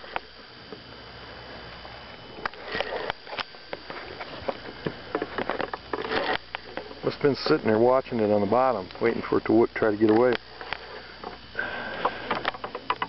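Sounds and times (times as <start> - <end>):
sniffing breath: 11.0 - 12.4.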